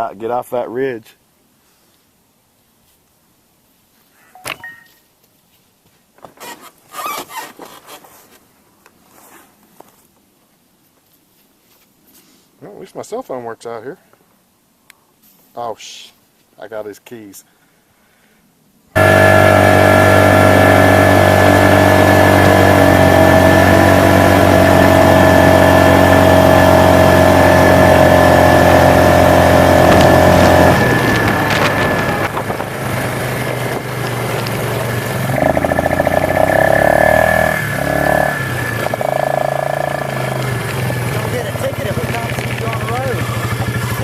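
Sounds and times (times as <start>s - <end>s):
vehicle engine running: 19.0s - 44.0s.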